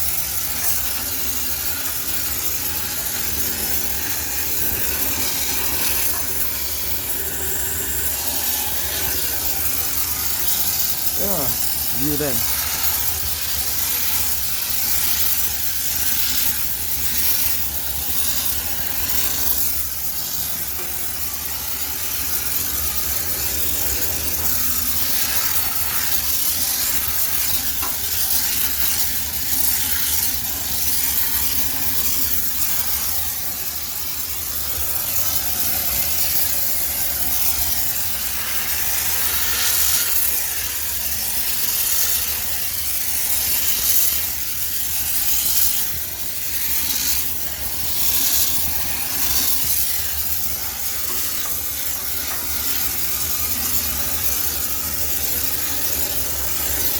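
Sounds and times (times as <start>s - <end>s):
steam cleaner hissing: 0.0s - 56.9s.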